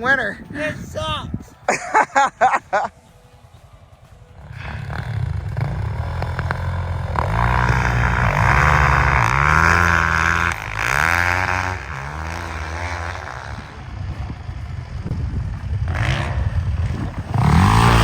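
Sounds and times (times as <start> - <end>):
off-road vehicle engine revving: 4.4 - 18.0.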